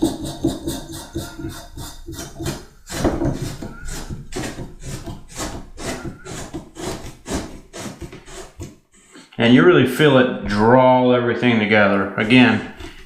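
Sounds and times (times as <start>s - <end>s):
metal ring scraping on threads: 0.0s - 8.7s.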